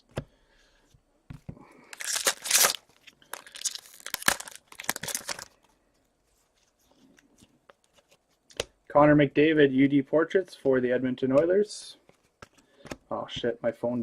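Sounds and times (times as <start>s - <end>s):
wrapper tearing and crinkling: 1.9s - 5.6s.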